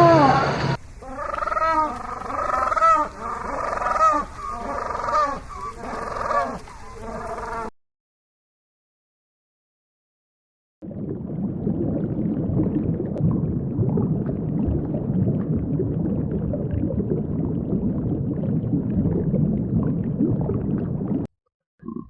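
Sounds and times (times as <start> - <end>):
animal rumbling call: 0.0 - 7.7.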